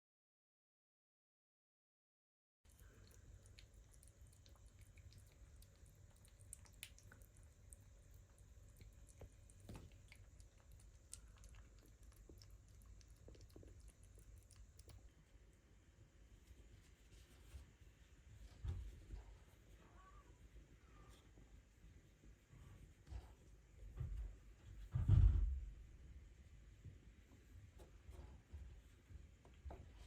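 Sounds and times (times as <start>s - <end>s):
faint clicks and ticks: 2.7s - 15.2s
kitten purring: 2.7s - 15.4s.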